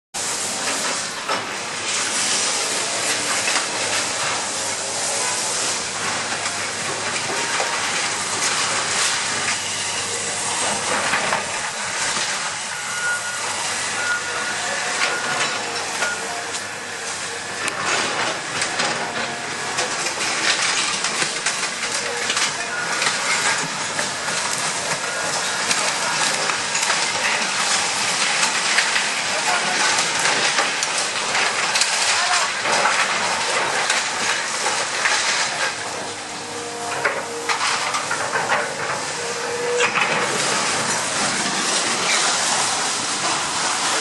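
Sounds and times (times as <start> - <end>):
loud hissing noise: 0.2 - 44.0
faint high beep: 12.7 - 16.4.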